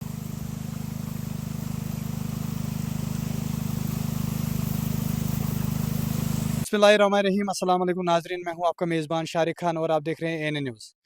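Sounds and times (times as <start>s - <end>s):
low pulsing motor drone: 0.0s - 6.6s.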